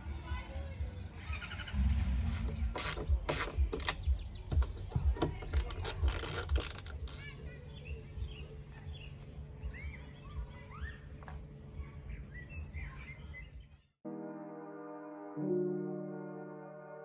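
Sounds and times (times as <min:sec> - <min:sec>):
small birds chirping: 0:00.3 - 0:14.0
rubbing and clicking noises: 0:02.2 - 0:07.4.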